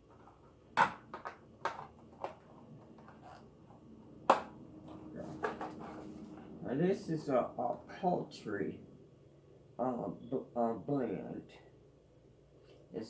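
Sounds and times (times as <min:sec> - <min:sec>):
faint steady hum: 0:00.0 - 0:13.0
clicks and knocks of handling: 0:00.1 - 0:03.4.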